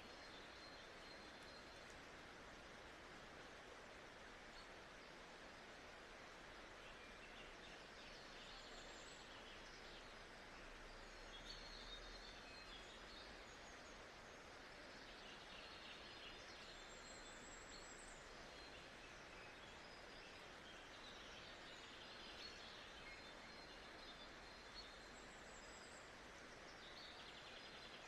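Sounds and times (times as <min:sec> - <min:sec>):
faint bird chirps: 0:00.0 - 0:02.0
soft white noise hiss: 0:00.0 - 0:28.0.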